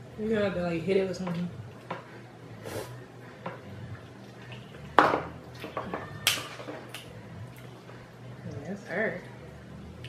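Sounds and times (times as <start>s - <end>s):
utensils and dishes clinking: 4.4s - 8.0s.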